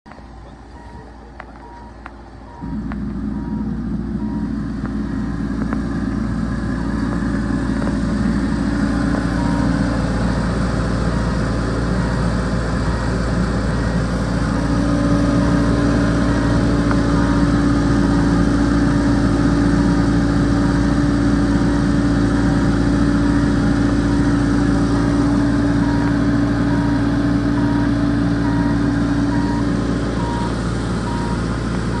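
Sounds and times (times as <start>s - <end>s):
loader diesel engine running: 0.1s - 32.0s
faint repeating beep: 0.7s - 4.6s, 25.8s - 32.0s.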